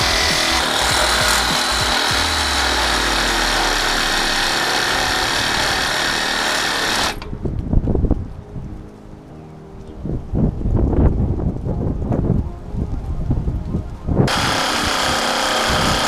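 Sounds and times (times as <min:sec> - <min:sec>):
reciprocating saw cutting steel: 0:00.0 - 0:07.2, 0:14.3 - 0:16.0.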